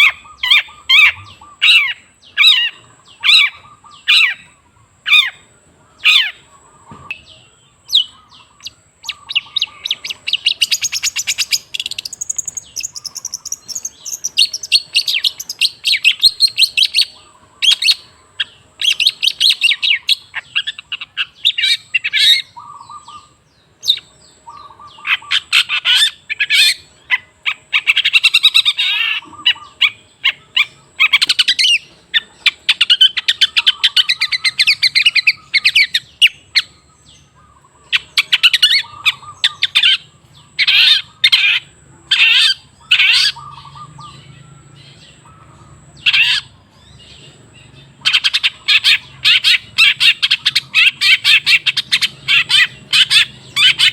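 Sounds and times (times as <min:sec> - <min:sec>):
bird squeaky calls: 0:00.0 - 0:05.4, 0:06.0 - 0:07.3, 0:07.9 - 0:53.9
shrike singing harsh chattering notes: 0:07.9 - 0:23.1.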